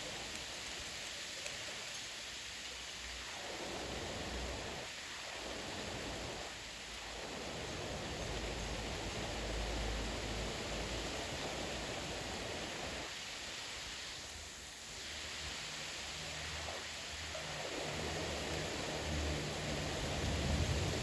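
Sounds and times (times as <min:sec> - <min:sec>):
gusty wind rushing: 0:20.0 - 0:21.0.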